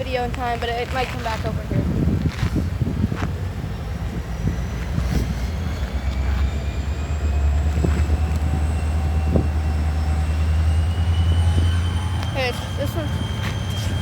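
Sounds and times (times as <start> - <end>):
locomotive engine rumbling: 0.0 - 14.0
thin high squeals: 5.5 - 14.0.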